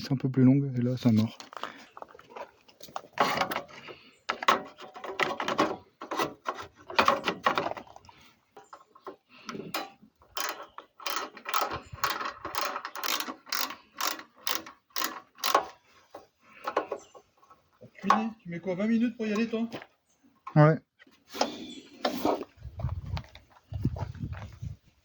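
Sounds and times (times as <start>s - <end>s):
ratchet wrench clicking: 10.4s - 15.8s.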